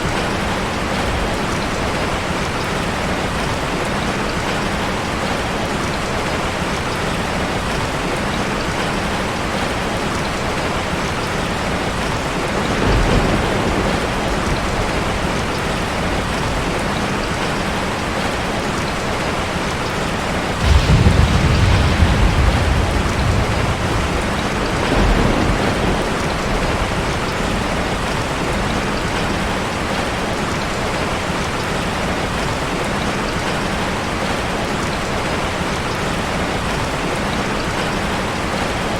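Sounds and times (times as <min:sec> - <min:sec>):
deep rumbles: 0:20.6 - 0:27.6.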